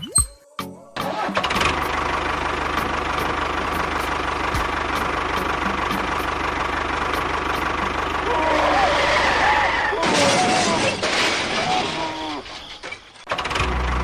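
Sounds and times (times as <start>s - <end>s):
small engine running: 1.2s - 9.6s.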